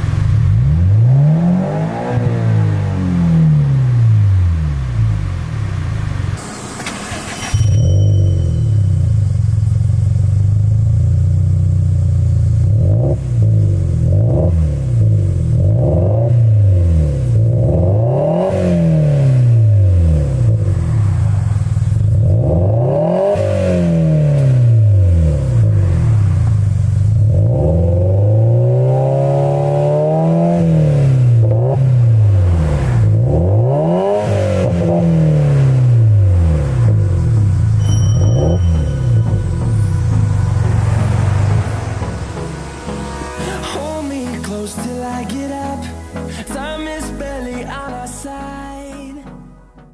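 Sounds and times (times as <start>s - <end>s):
car engine revving: 0.0s - 46.3s.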